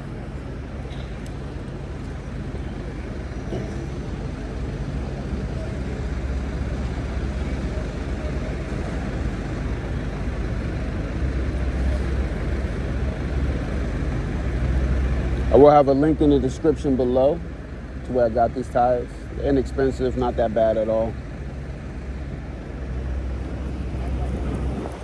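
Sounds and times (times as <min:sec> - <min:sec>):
rolling road noise: 0:00.0 - 0:25.0
wind on microphone: 0:23.4 - 0:25.0.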